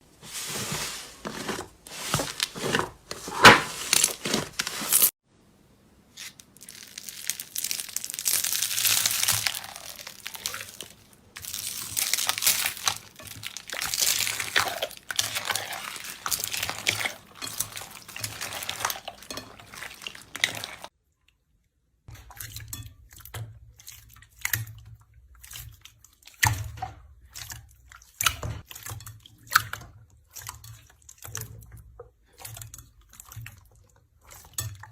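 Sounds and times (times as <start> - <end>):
slime squishing and popping: 6.2 - 20.9.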